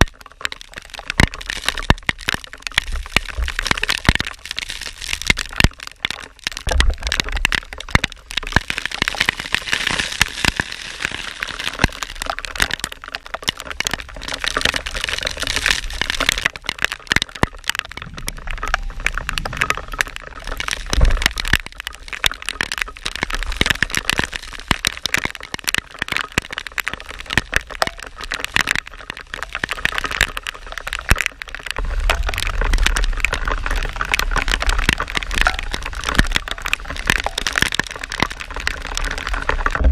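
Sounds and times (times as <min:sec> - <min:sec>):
skate wheels rolling on wet pavement: 0:00.0 - 0:39.9
wind rumble on microphone: 0:17.9 - 0:21.8, 0:38.2 - 0:39.9.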